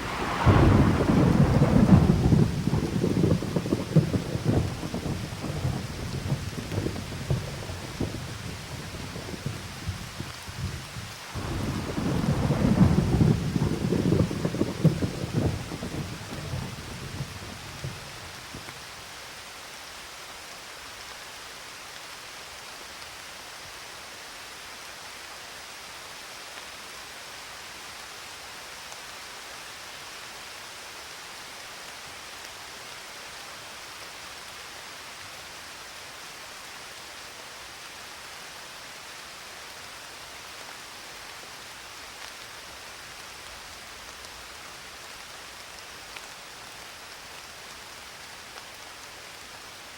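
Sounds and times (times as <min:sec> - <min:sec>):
thunder rumble: 0:00.0 - 0:18.7
steady rain falling: 0:00.0 - 0:49.9.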